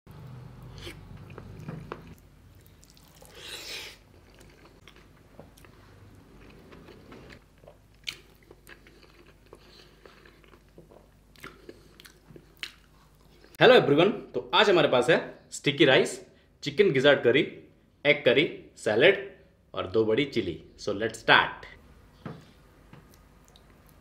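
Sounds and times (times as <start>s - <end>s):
person chewing food: 0.6s - 13.6s, 22.4s - 24.0s.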